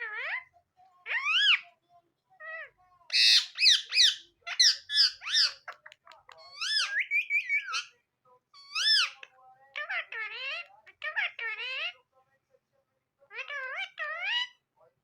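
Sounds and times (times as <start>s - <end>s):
parrot high-pitched calls: 1.1s - 1.6s, 2.4s - 5.8s, 6.4s - 7.9s, 8.6s - 12.0s, 13.3s - 14.6s.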